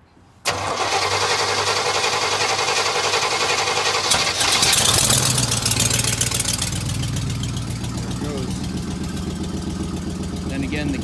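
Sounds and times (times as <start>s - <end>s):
fast exhaust ticking: 2.3s - 11.0s
car engine running: 3.1s - 11.0s.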